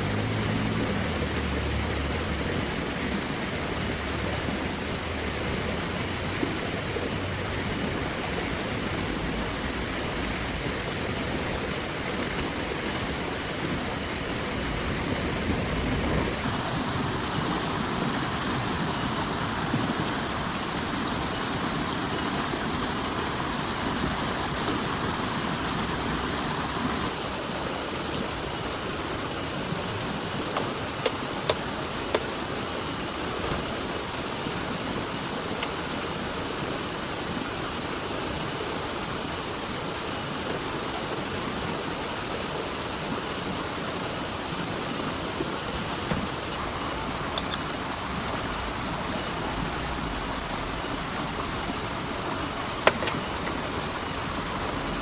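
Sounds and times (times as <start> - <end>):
heavy rain pouring: 0.0 - 55.0
sharp taps of raindrops: 52.6 - 53.7.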